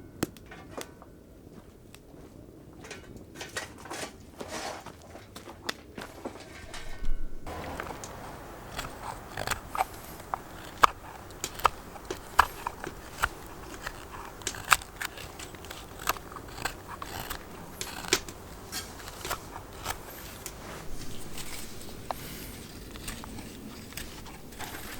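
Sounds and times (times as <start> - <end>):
knife carving wood: 7.5 - 24.9.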